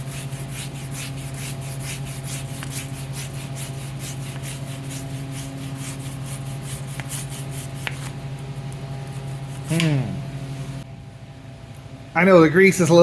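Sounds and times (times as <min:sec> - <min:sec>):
brush scrubbing metal: 0:00.0 - 0:08.1
steady low hum: 0:00.0 - 0:13.0.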